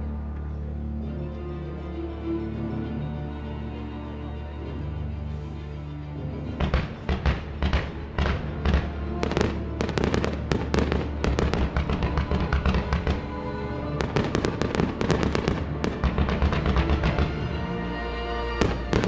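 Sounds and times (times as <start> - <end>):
fireworks crackling bangs: 6.6 - 13.3, 14.0 - 17.5, 18.6 - 19.0.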